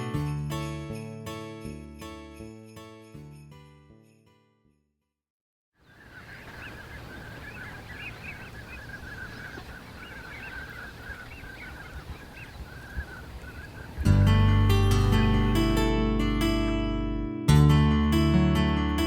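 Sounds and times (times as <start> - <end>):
acoustic guitar music: 0.0 - 3.7, 14.0 - 19.0
geese honking: 5.9 - 14.0.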